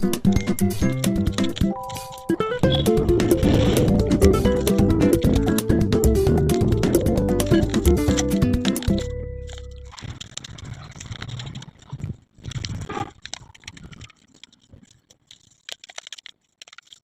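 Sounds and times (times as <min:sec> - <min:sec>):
paper rustling: 0:00.3 - 0:05.7, 0:06.5 - 0:17.0
paper tearing crackles: 0:06.5 - 0:17.0.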